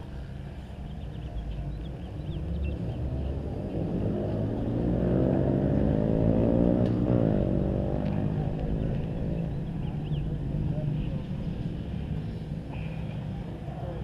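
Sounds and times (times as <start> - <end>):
motorcycle engine accelerating: 2.3 - 12.4.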